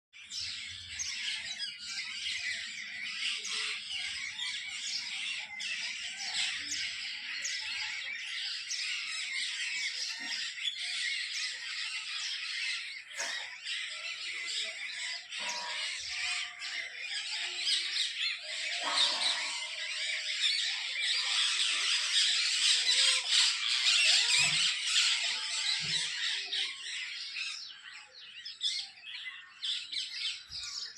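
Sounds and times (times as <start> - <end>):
chorus of birds chattering: 0.2 - 30.9
bird squawks: 8.7 - 27.1.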